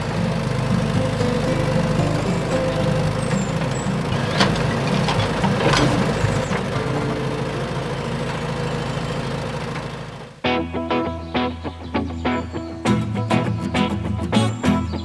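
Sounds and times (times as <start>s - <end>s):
engine idling: 0.0s - 10.4s.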